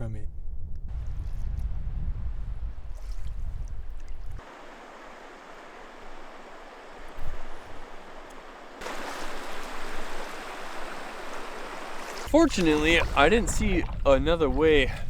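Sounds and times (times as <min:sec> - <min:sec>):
wind rumble on microphone: 0:00.0 - 0:04.4, 0:12.2 - 0:15.0
river rapids rushing: 0:04.4 - 0:13.3.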